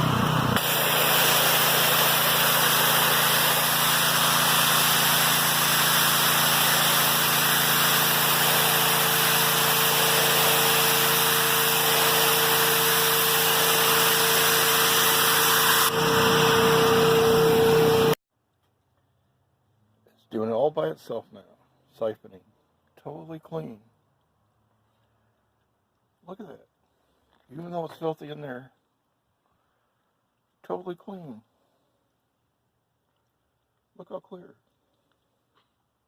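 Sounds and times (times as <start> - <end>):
cleaning machine rushing: 0.0 - 18.2
steady whine: 10.4 - 18.2
low hum: 15.8 - 18.2.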